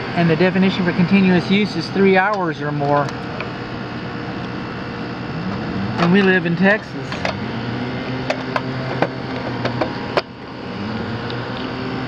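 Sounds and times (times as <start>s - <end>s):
condensing unit humming: 0.0s - 12.0s.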